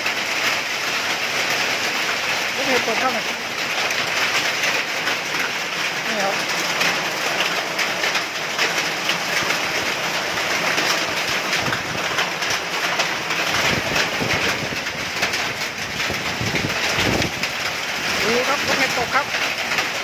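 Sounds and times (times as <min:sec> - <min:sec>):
hail and heavy rain clattering: 0:00.0 - 0:20.0
wind gusts rumbling: 0:11.1 - 0:19.4.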